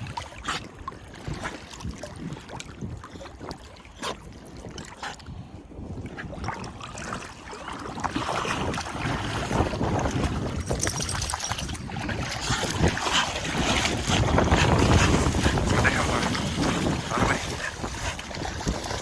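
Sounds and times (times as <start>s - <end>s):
wind buffeting microphone: 0.0s - 19.0s
rushing water: 6.5s - 19.0s.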